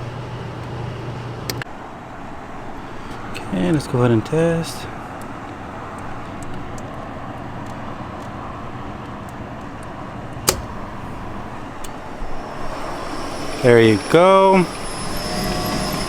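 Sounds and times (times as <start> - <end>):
gas heater whooshing: 10.2 - 16.0
sharp click: 10.4 - 12.0.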